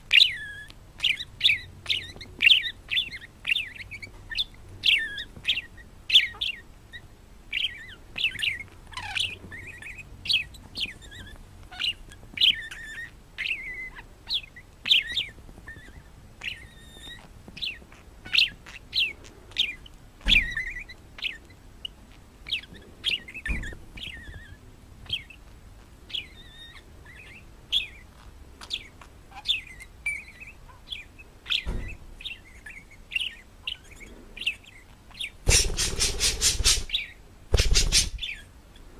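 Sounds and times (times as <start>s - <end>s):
parrot chirping: 0.1s - 38.6s
low thumps: 35.5s - 36.9s, 37.5s - 38.3s.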